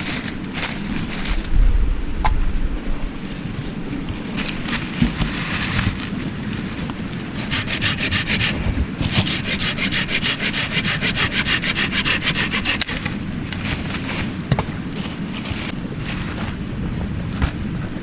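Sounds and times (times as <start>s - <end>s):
hand saw cutting wood: 7.2s - 14.2s.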